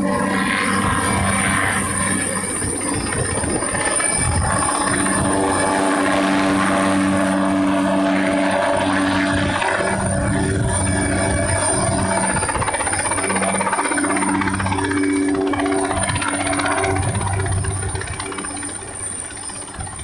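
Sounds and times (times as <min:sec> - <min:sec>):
helicopter drone: 0:00.0 - 0:20.0
high whine: 0:00.0 - 0:20.0.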